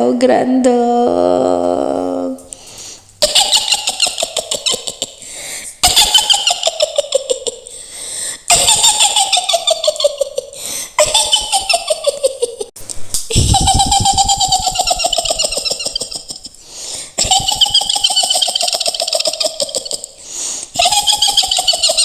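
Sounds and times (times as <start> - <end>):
woman's shrill witch cackle: 3.2 - 5.2, 5.8 - 7.7, 8.5 - 12.7, 13.3 - 16.6, 17.2 - 20.2, 20.8 - 22.0.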